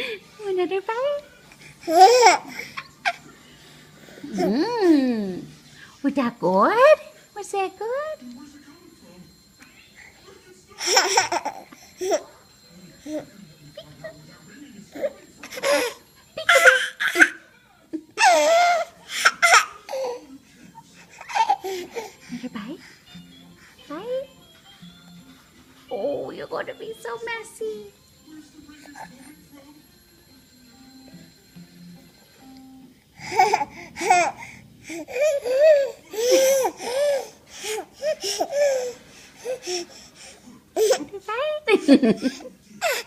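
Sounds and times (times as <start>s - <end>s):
baby laughing: 15.7s - 17.4s.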